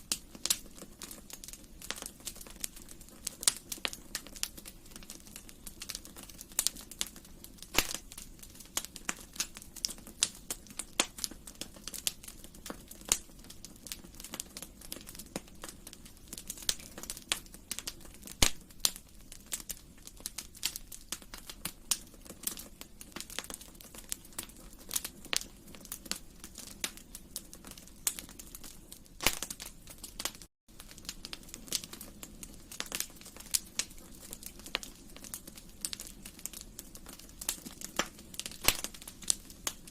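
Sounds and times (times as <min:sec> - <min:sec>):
low steady fire hiss: 0:00.0 - 0:39.9
wood fire crackling and popping: 0:00.0 - 0:39.9.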